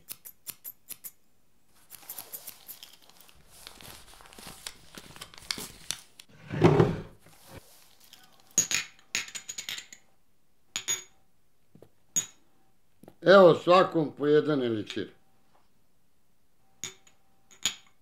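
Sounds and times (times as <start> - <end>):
paper banknotes rustling: 1.8 - 6.3.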